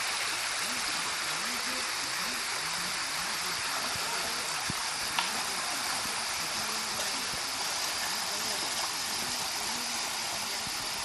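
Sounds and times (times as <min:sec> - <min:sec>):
stream water flowing: 0:00.0 - 0:11.0.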